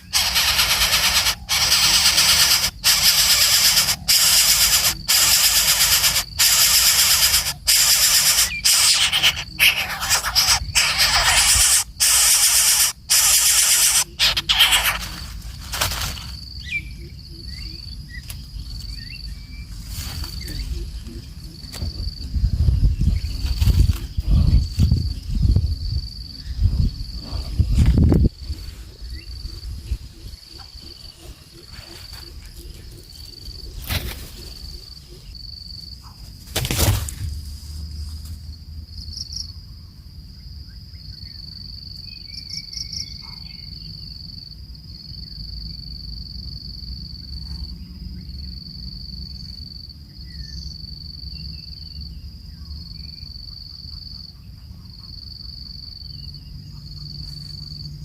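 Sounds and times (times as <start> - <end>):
faint bird chirps: 0.0 - 15.3, 40.9 - 44.2
insects chirping: 0.0 - 58.0.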